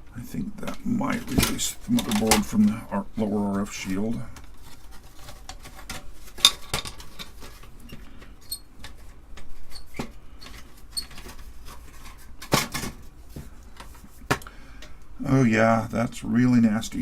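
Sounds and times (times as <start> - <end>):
clicks and scrapes of metal and plastic: 4.3 - 14.5.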